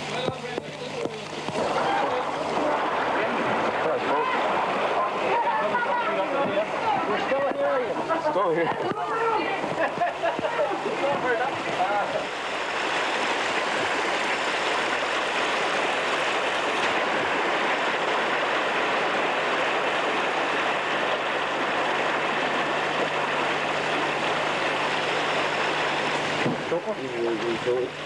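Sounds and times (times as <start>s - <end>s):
low steady hum: 0.0s - 28.0s
loud rushing noise: 1.6s - 7.2s, 11.0s - 26.9s
engine running: 8.0s - 28.0s.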